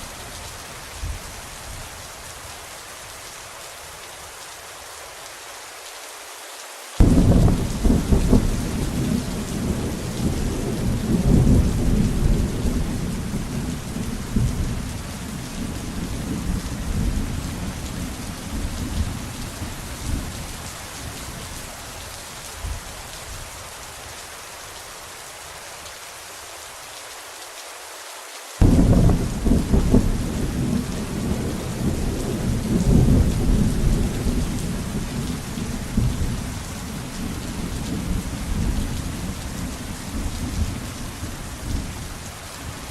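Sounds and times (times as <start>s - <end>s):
rain hiss: 0.0s - 42.9s
thunder rumbling: 7.0s - 20.4s, 28.6s - 42.1s.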